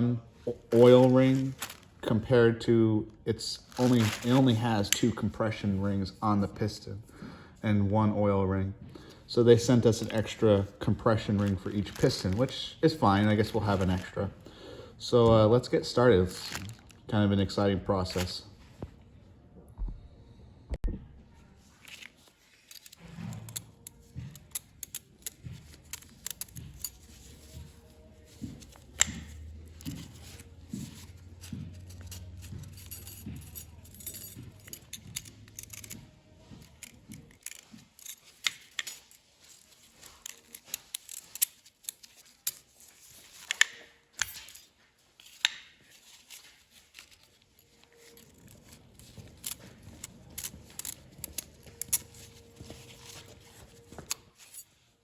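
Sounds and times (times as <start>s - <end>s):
small metal parts clinking: 0.7s - 2.0s, 3.7s - 5.0s, 21.8s - 54.7s.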